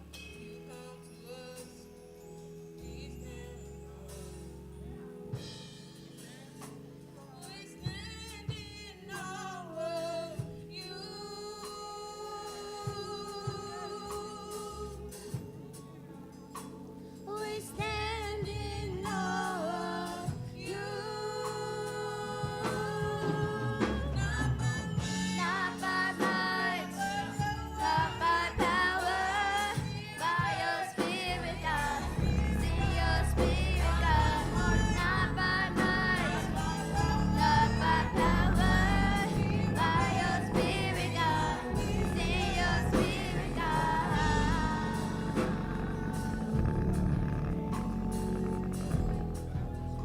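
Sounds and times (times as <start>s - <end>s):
gospel band accompaniment: 0.0s - 50.0s
person singing: 9.2s - 15.4s, 17.3s - 49.7s
person singing long notes: 31.0s - 50.0s
band playing: 31.8s - 50.0s
low drum beats: 32.0s - 50.0s.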